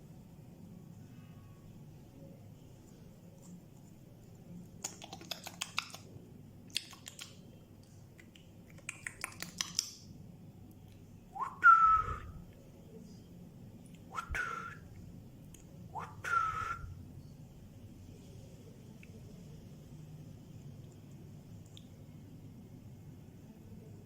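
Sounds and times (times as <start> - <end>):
parrot whistling: 16.0 - 16.9.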